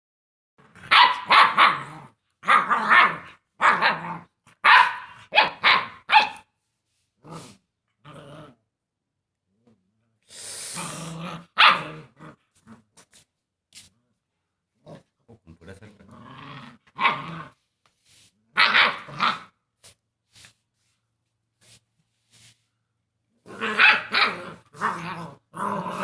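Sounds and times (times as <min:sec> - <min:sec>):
dog barking: 0:00.9 - 0:04.0, 0:04.6 - 0:06.5, 0:11.6 - 0:12.0, 0:18.6 - 0:19.5, 0:23.7 - 0:24.4
dog growling: 0:07.2 - 0:08.6, 0:10.8 - 0:12.9, 0:15.9 - 0:17.6, 0:23.4 - 0:26.0.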